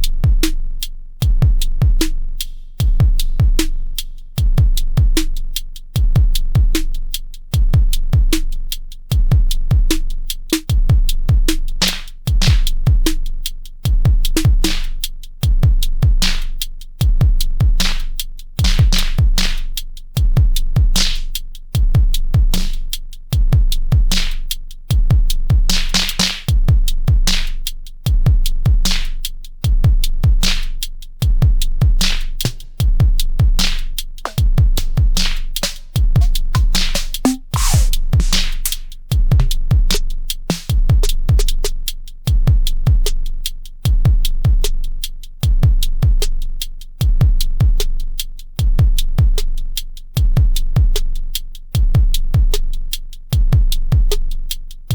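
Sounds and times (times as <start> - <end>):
deep kick drums: 0.0 - 2.2, 2.8 - 5.3, 5.9 - 16.4, 17.0 - 18.0, 18.6 - 19.5, 20.2 - 29.0, 29.6 - 44.8, 45.4 - 48.0, 48.6 - 49.6, 50.2 - 51.1, 51.8 - 52.8, 53.4 - 54.3
hi-hat ticks: 0.0 - 54.9
snappy snare hits: 33.6 - 41.5.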